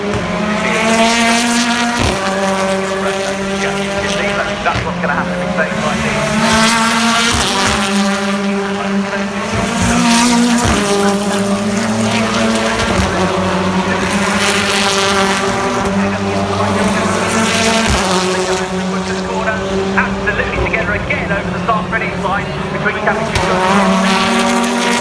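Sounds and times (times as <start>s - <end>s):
race cars passing at high revs: 0.0s - 25.0s.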